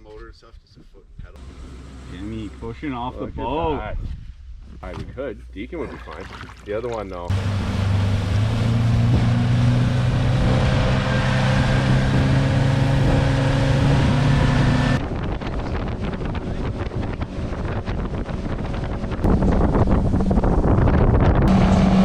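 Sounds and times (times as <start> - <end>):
rushing water: 5.8 - 15.0
outboard motor running: 6.2 - 22.0
wind buffeting: 7.3 - 22.0.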